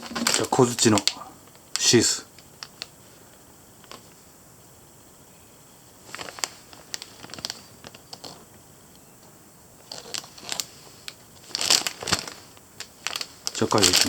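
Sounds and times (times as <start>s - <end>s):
packaging rustling and clicking: 0.0s - 1.2s, 6.1s - 8.4s, 9.9s - 14.0s.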